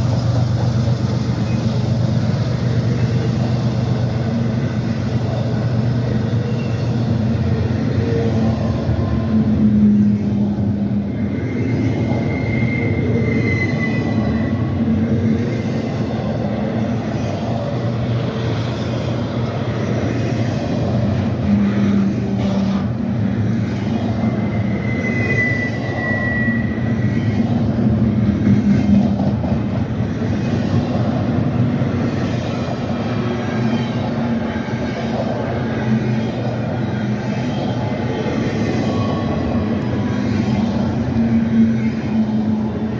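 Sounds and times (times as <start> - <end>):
freight train wheels rumbling: 0.0 - 42.9
high wheel squeal: 1.3 - 16.3, 23.9 - 27.8, 32.5 - 42.9.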